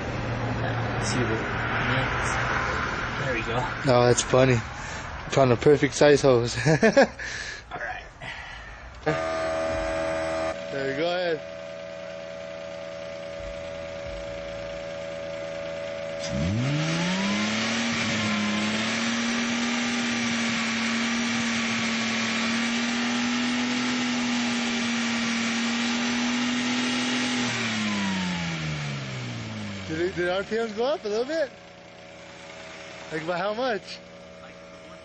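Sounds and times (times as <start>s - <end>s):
air compressor motor hum: 8.2s - 35.0s.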